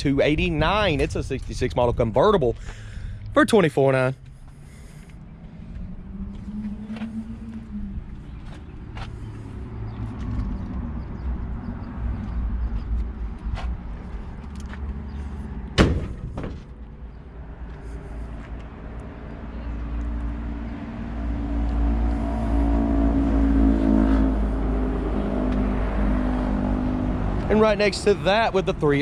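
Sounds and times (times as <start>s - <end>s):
low steady rumble: 0.0s - 14.4s
car door slamming: 15.8s - 16.8s.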